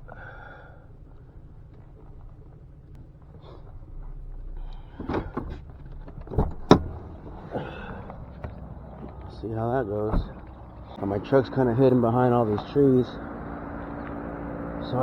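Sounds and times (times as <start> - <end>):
truck engine humming: 0.0 - 15.0
clunks and knocks: 1.7 - 11.0
truck door slamming: 4.5 - 10.9.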